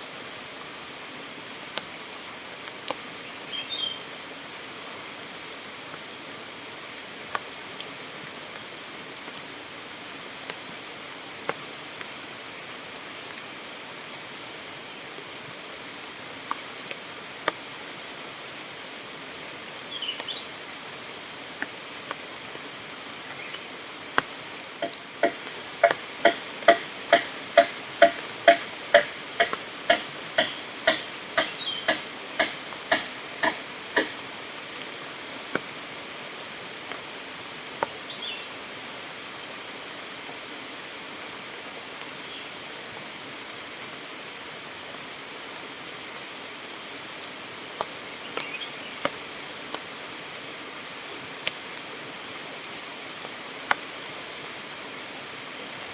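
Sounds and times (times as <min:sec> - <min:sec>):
single knocks: 0:24.8 - 0:34.2
hand tool striking with ringing: 0:24.8 - 0:34.3.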